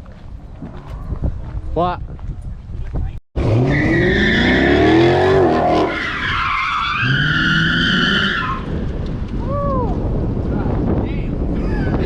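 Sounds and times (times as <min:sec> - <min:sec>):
car engine revving: 0:03.4 - 0:06.4.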